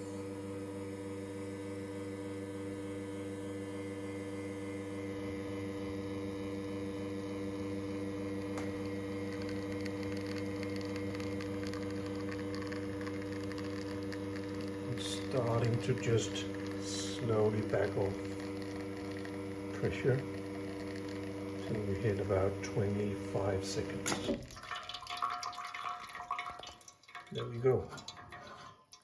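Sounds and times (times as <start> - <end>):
espresso machine pump humming: 0.0 - 26.8
faint fine crackle: 8.3 - 22.0.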